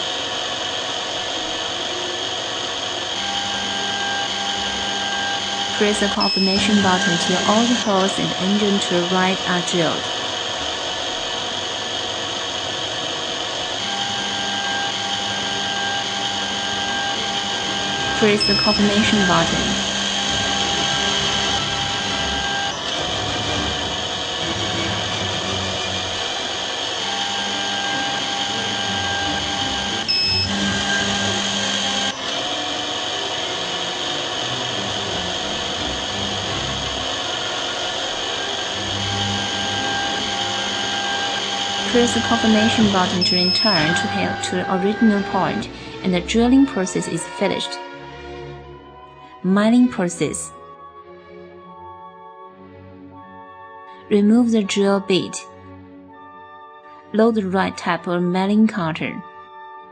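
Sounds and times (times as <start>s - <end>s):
steady hum: 0.0s - 47.8s
drill motor running: 0.0s - 49.1s
short beep: 6.1s - 7.5s, 18.3s - 19.4s, 30.1s - 30.5s, 43.1s - 44.4s.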